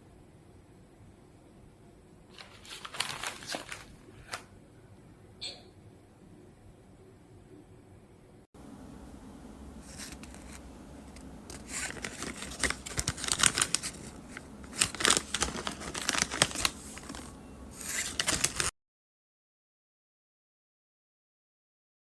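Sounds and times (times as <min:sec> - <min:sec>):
plastic packet crinkling and tearing: 0:02.3 - 0:04.5, 0:09.8 - 0:10.6, 0:11.5 - 0:18.7.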